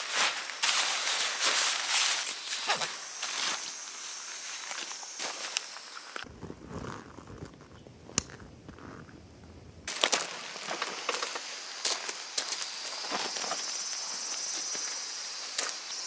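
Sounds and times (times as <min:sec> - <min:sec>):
high insect drone: 0:00.0 - 0:06.3, 0:09.9 - 0:16.0.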